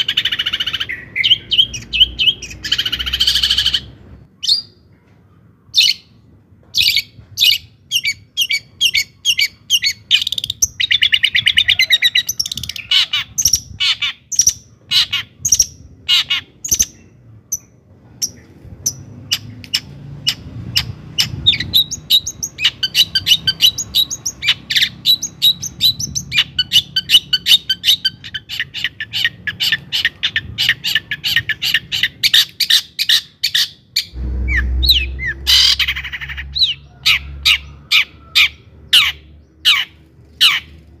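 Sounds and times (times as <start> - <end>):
bird singing sharp chirps: 34.0 - 37.8
low rumble: 34.1 - 39.5.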